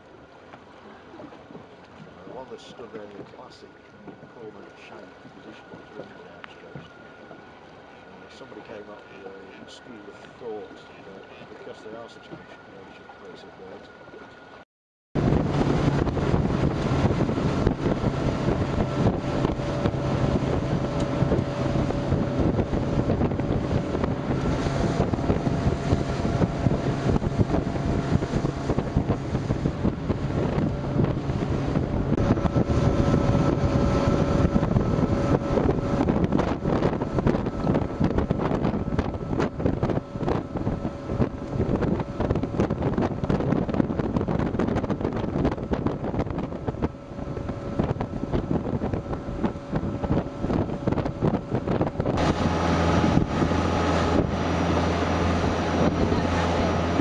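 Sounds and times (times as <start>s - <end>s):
boat engine drone: 0.0s - 14.6s, 15.2s - 57.0s
wind buffeting microphone: 15.2s - 57.0s.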